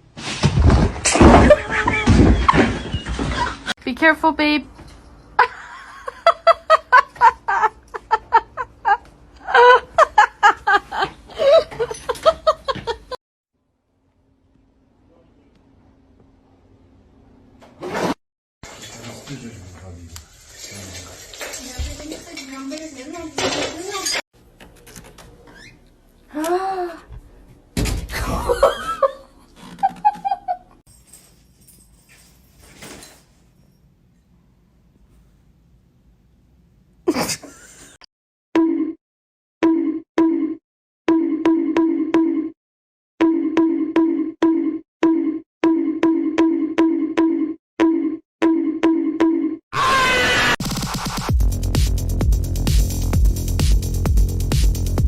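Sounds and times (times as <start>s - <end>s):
person laughing hard: 5.4s - 13.2s.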